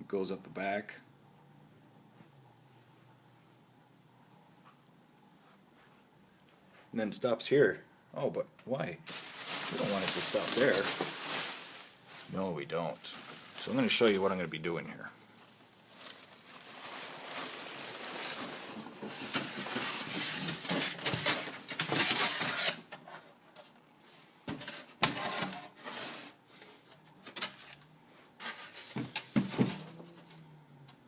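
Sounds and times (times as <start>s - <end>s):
rustling: 9.0s - 22.8s.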